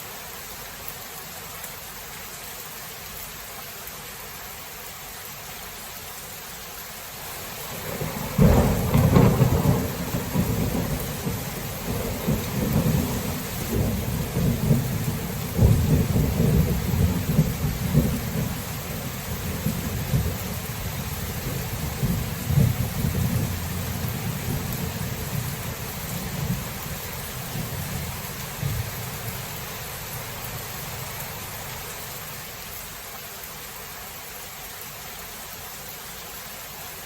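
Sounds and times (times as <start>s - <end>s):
steady rain falling: 0.0s - 37.0s
thunderclap and rumbling thunder: 7.8s - 29.4s.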